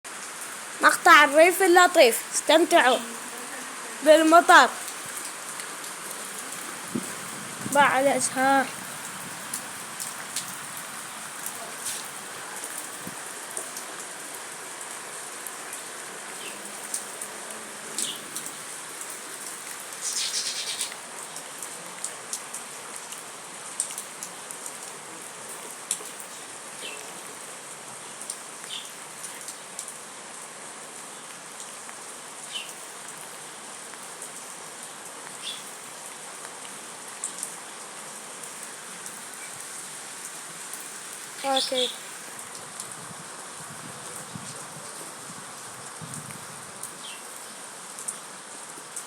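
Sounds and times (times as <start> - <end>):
steady rain falling: 0.0 - 49.0
raindrops tapping: 0.8 - 15.6.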